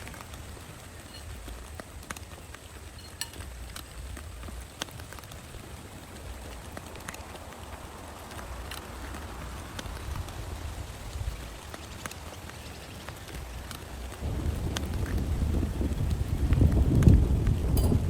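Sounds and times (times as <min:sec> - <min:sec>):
drops ticking on plastic tarp: 0:00.0 - 0:18.0
heavy rain falling: 0:00.0 - 0:18.0
thunder rumble: 0:13.4 - 0:18.0.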